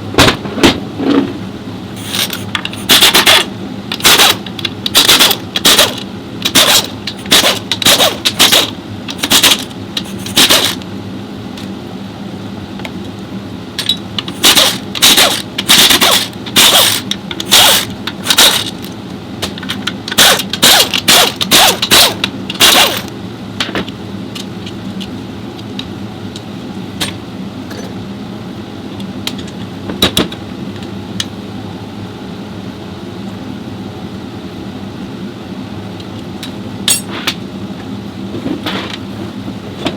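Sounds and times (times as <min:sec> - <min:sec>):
workshop hum: 0:00.0 - 0:39.9
impact wrench bursts: 0:02.0 - 0:10.8, 0:13.8 - 0:18.9, 0:20.1 - 0:23.1.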